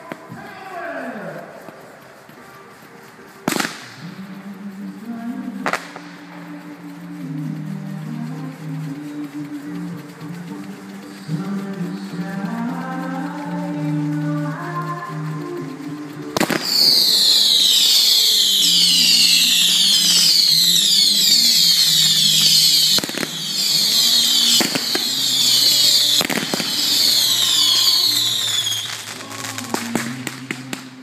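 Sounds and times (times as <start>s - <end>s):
fireworks whistling: 0.0s - 31.0s
fireworks bangs: 3.4s - 4.4s, 5.6s - 6.5s, 16.2s - 31.0s.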